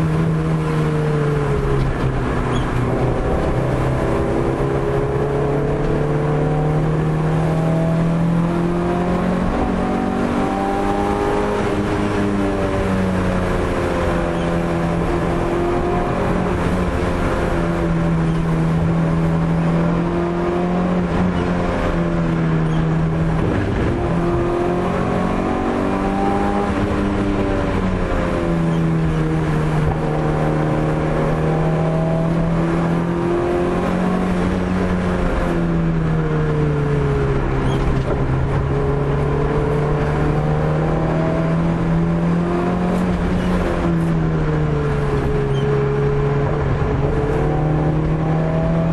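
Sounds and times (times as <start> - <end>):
car engine revving hard: 2.2 - 36.0, 37.3 - 48.9.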